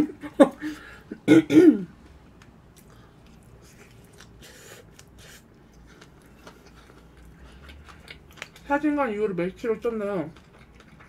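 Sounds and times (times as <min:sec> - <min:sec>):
faint close-up chewing: 0:02.4 - 0:09.0, 0:09.7 - 0:11.0.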